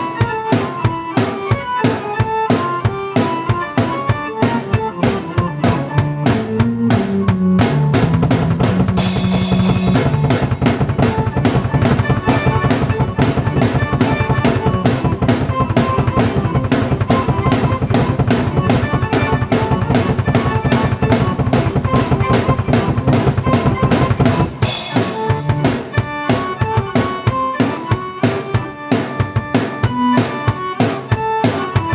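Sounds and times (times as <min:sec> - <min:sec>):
fast drum pattern: 0:00.0 - 0:31.9
sustained keyboard notes: 0:00.0 - 0:31.9
cymbal crash: 0:09.0 - 0:10.8, 0:24.6 - 0:25.7.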